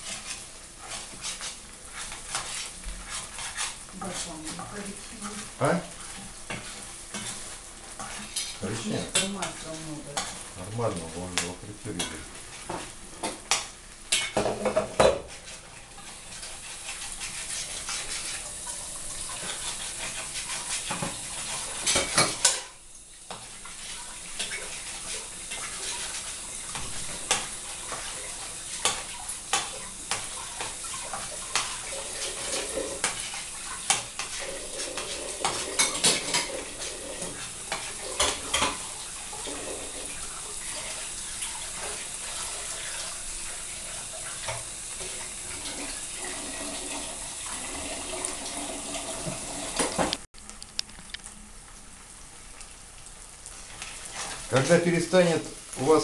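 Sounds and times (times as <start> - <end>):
metal spoon scraping a pan: 0.0 - 5.4, 6.0 - 10.5, 11.9 - 12.8, 13.5 - 22.7, 23.3 - 40.2
food sizzling in hot oil: 0.0 - 50.3, 51.2 - 56.0.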